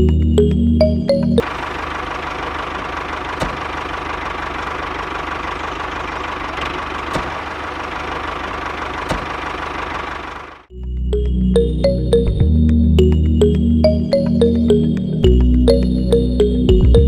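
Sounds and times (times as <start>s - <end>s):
small tractor engine chugging: 1.4s - 10.7s.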